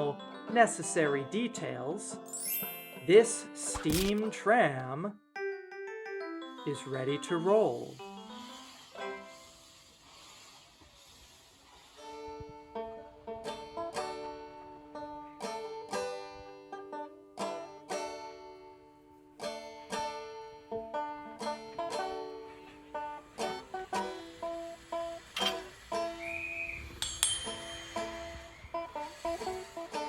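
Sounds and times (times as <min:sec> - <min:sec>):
banjo picking lively tune: 0:12.2 - 0:26.2, 0:27.5 - 0:30.0.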